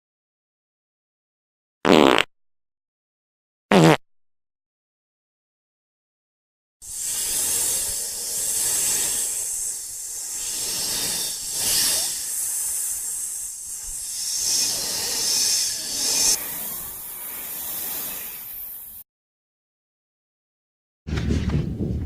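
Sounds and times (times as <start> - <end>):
hissing noise: 6.8 - 19.0.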